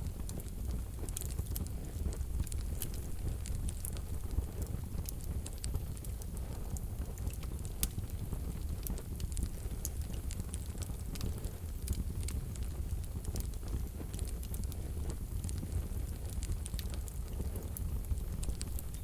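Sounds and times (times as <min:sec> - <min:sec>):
logs crackling and popping: 0:00.0 - 0:19.0
low rumble of flames: 0:00.0 - 0:19.0.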